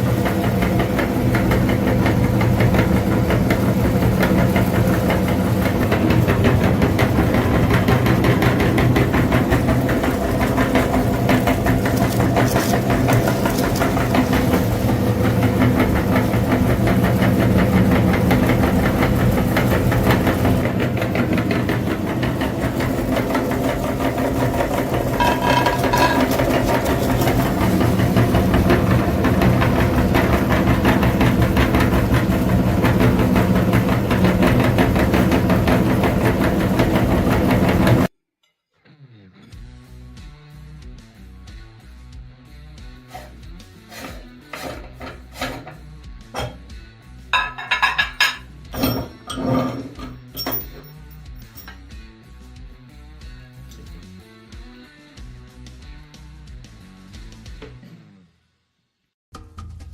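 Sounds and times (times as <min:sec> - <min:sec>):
tractor engine knocking: 0:00.0 - 0:38.1.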